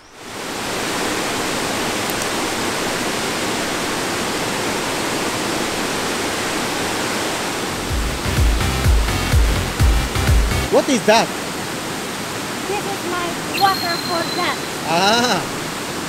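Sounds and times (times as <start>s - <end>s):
waterfall rushing: 0.2s - 16.0s
low rumbles: 7.7s - 10.7s.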